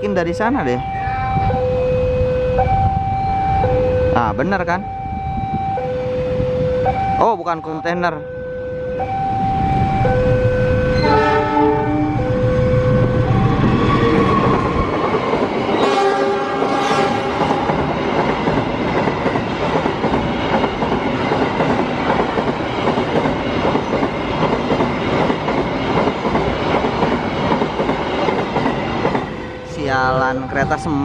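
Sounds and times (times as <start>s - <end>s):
freight train rumbling past: 8.3s - 31.0s
locomotive horn: 10.2s - 14.6s, 15.8s - 17.7s.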